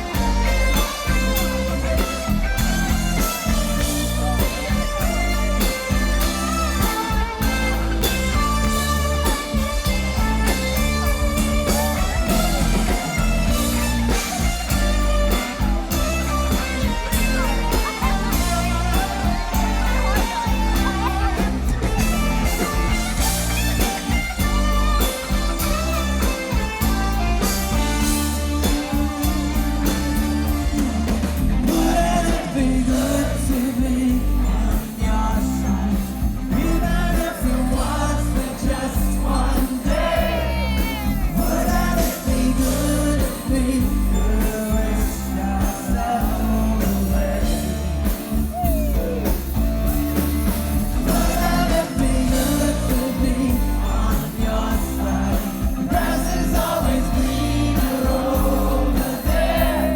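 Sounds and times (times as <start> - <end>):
lead singer singing: 0.0 - 49.2, 50.9 - 59.9
live pop-rock band: 0.0 - 59.9.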